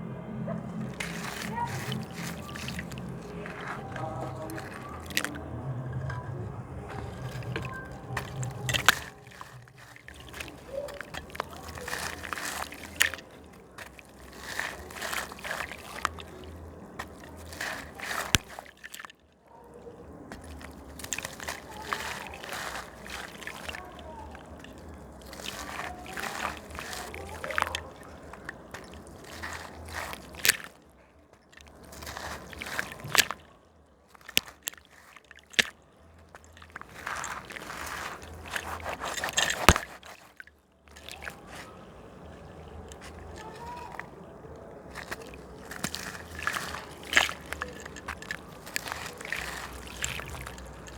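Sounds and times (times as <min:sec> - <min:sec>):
slab crumbling in water: 0:00.8 - 0:19.1, 0:34.1 - 0:41.7.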